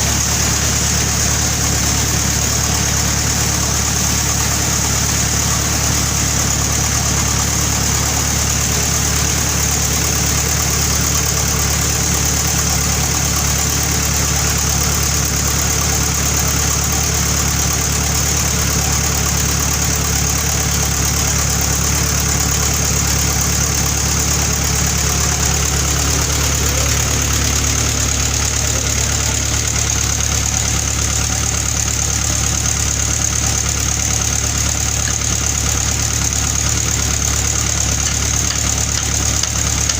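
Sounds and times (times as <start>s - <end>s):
sawmill engine hum: 0.0s - 39.9s.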